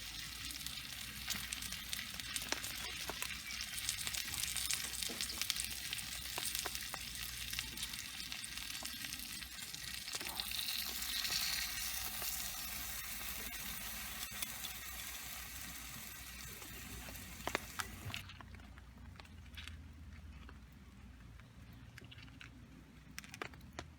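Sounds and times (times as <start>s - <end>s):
food sizzling in a skillet: 0.0s - 18.2s.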